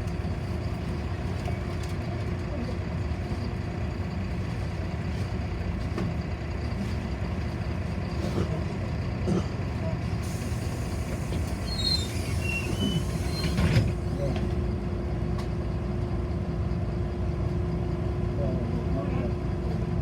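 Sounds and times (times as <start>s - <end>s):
bus engine and road rumble: 0.0s - 20.0s
brakes squealing: 10.2s - 14.6s.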